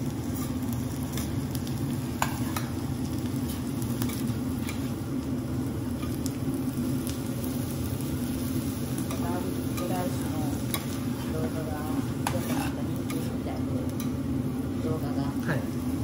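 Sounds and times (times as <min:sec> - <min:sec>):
rice sizzling on a griddle: 0:00.0 - 0:16.0
metal spatulas scraping and tapping: 0:10.7 - 0:11.0, 0:12.2 - 0:13.3.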